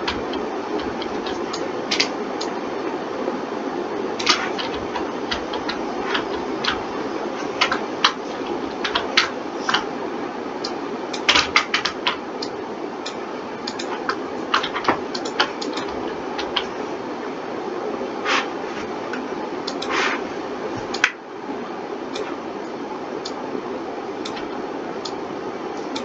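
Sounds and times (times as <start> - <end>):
mouse and keyboard clicking: 0.0 - 2.5, 4.2 - 9.9, 10.6 - 12.5, 13.1 - 16.7, 19.1 - 20.2, 24.2 - 25.2
background hum: 0.0 - 26.0.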